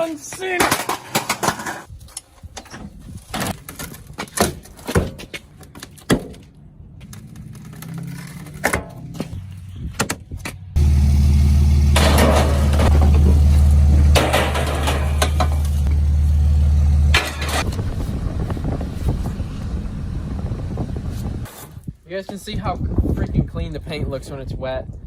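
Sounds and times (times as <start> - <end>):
engine running with deep hum: 10.7 - 21.5.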